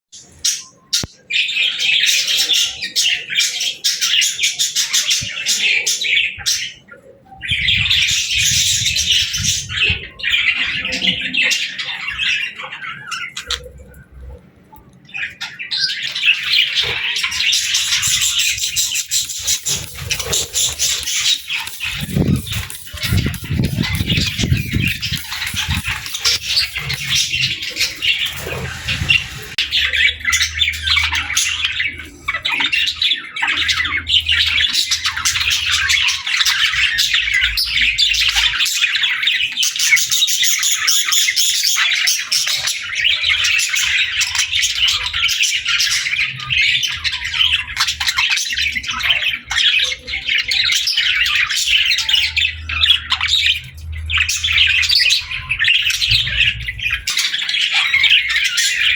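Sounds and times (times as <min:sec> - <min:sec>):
budgerigars chattering: 0:00.2 - 0:58.9.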